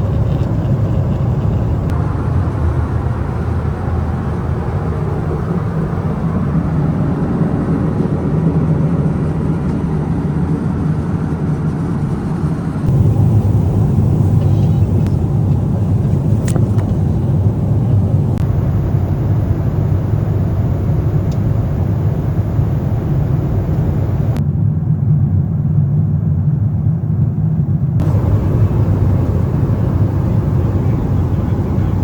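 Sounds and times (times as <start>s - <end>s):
aircraft cabin engine rumble: 0.0s - 24.4s, 27.1s - 32.0s
light click: 21.1s - 24.4s.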